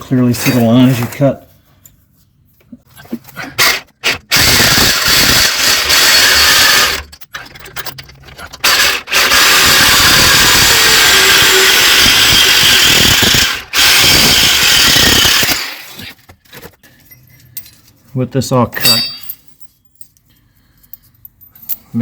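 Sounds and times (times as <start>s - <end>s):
power tool cutting metal: 3.6s - 7.1s, 8.6s - 15.9s.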